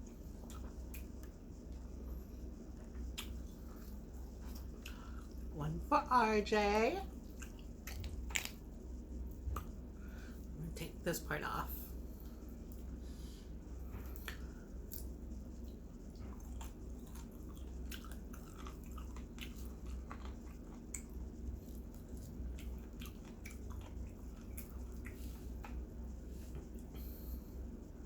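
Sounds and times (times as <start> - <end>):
steady low hum: 0.0 - 28.0
chewing: 0.1 - 1.4, 2.8 - 5.5, 7.2 - 8.7, 14.0 - 27.4.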